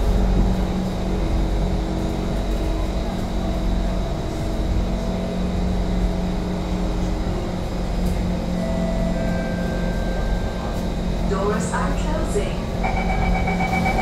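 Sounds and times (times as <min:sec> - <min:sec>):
train equipment hum: 0:00.0 - 0:14.0
thin high whine: 0:12.8 - 0:14.0.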